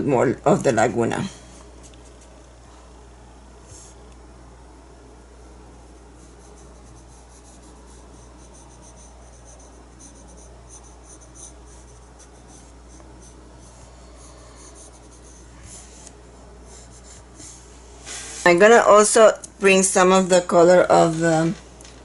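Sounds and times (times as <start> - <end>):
steady low hum: 0.0 - 22.0
paintbrush strokes on canvas: 6.1 - 18.7.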